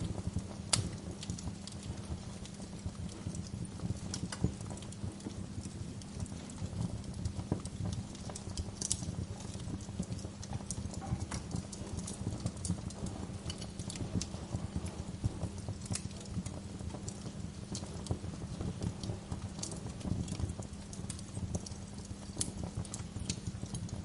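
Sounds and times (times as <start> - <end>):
low steady rumble: 0.0 - 24.0
wood fire crackling: 0.0 - 24.0.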